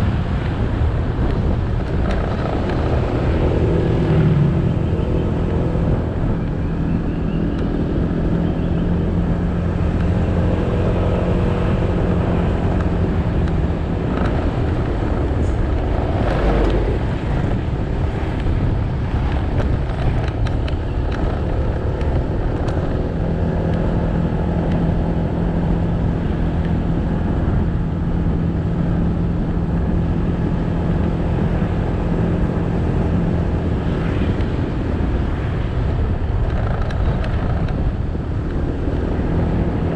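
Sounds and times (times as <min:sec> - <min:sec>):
motorcycle engine running: 0:00.0 - 0:39.9
tyre and road noise: 0:00.0 - 0:39.9.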